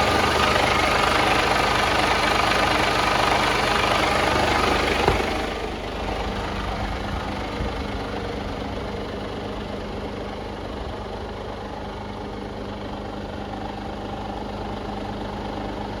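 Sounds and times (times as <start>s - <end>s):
truck diesel engine idling: 0.0s - 16.0s.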